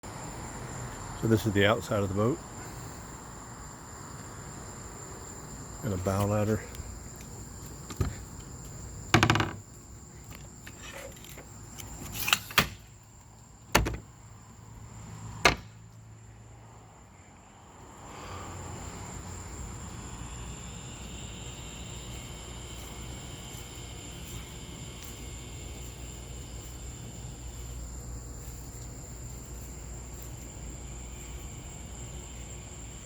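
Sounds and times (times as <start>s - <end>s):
steady hiss: 0.1s - 33.0s
sharp knocks and clicks: 9.1s - 9.6s, 13.7s - 14.1s, 15.4s - 15.7s
steady high whine: 17.6s - 33.0s.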